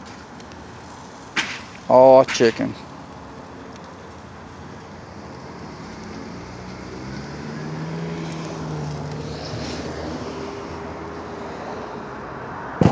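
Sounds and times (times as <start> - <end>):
outdoor background noise: 0.0 - 12.9
vehicle engine hum: 0.0 - 12.9.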